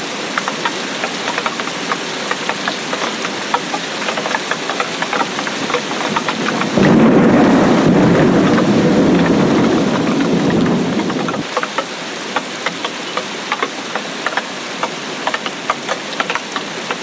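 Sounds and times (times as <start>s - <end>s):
rain falling: 0.0s - 17.0s
raindrops ticking: 0.0s - 17.0s
thunder rumble: 5.9s - 11.4s.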